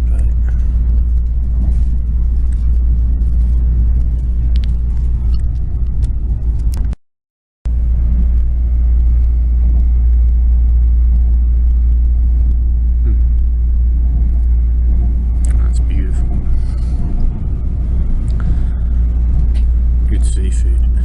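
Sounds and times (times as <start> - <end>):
train rumbling at speed: 0.0 - 7.0, 7.7 - 21.0.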